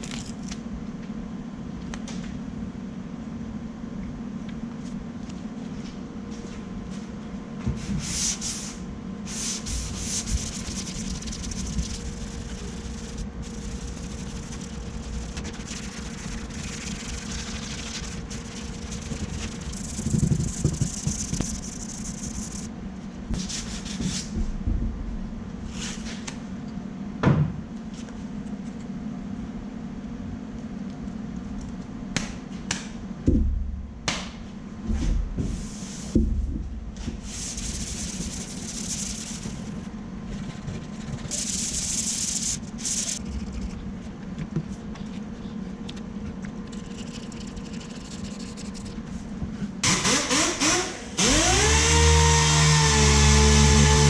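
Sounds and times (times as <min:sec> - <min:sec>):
sandpaper rasping on panel: 0:09.3 - 0:22.7, 0:37.2 - 0:43.2, 0:46.8 - 0:49.1
low hum: 0:09.7 - 0:23.3, 0:36.8 - 0:49.6.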